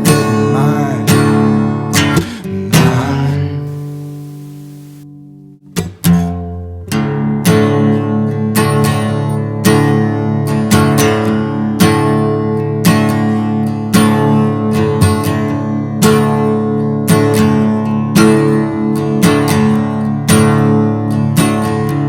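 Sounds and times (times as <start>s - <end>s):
acoustic guitar strumming: 0.0s - 8.3s.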